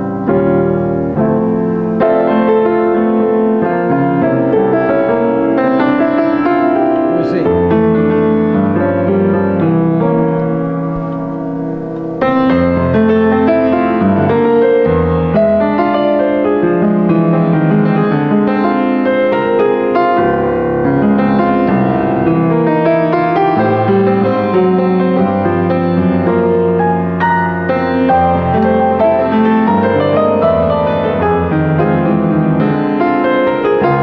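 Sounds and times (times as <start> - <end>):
solo piano: 0.0 - 34.0.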